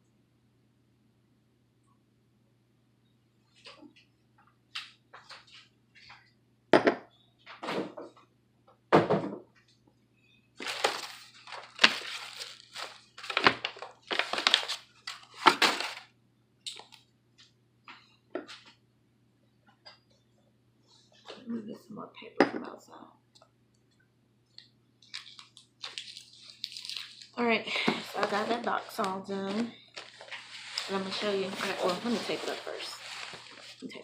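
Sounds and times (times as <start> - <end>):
packing paper rustling: 10.6 - 16.1, 25.0 - 34.0
items thunking into box: 15.3 - 16.0.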